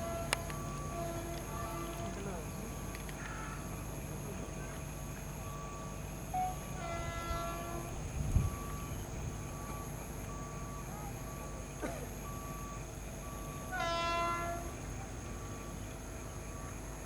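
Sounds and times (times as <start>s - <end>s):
locomotive horn: 0.0s - 2.1s, 6.4s - 8.7s, 13.2s - 15.6s
train rumbling: 0.0s - 4.3s, 6.3s - 17.0s.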